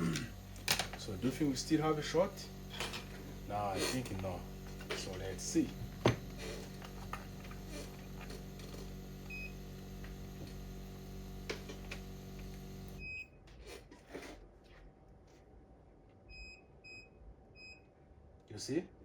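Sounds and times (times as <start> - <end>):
electrical equipment hum: 0.0 - 13.2.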